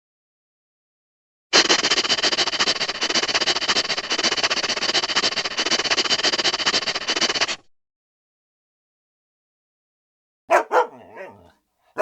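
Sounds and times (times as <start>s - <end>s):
dog making scratchy clicks: 10.5s - 12.0s.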